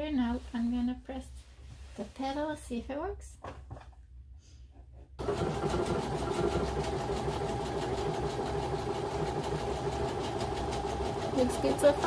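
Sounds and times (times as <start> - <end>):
sewing machine running: 5.2 - 12.0.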